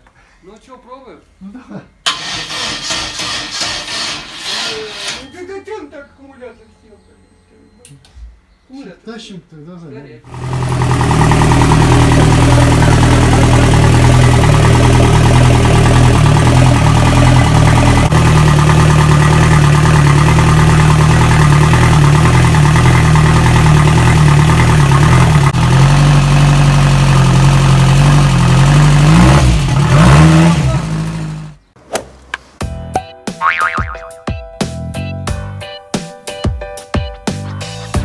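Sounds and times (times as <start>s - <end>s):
boat engine running and revving: 10.4s - 31.5s.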